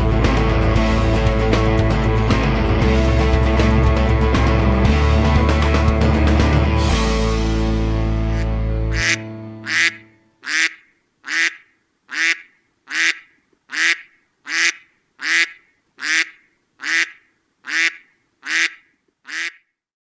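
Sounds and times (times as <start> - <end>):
duck quacking: 8.3 - 19.8.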